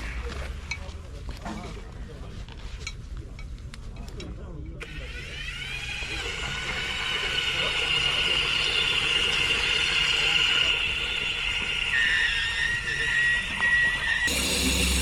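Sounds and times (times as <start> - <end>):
high-pitched mechanical whine: 14.3 - 15.0.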